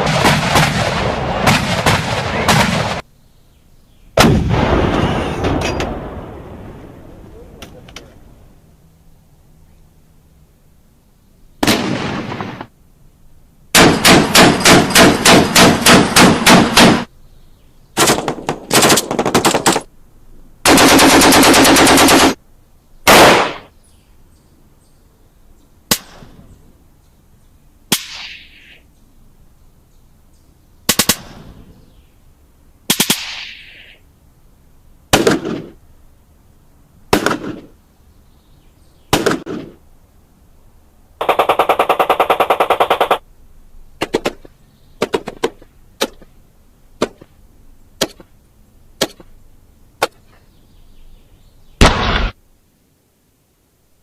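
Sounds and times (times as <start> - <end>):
single gunshots with echo: 4.2 - 6.4, 11.6 - 12.7, 23.1 - 23.7, 39.1 - 39.8, 51.8 - 52.4
automatic gunfire: 13.8 - 17.1, 18.0 - 19.9, 20.7 - 22.4, 23.1 - 23.7, 41.2 - 43.2.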